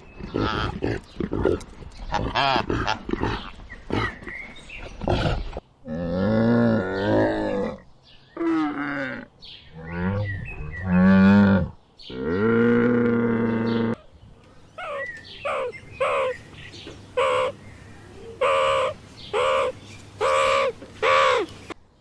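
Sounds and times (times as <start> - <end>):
choppy animal call: 14.8 - 16.4.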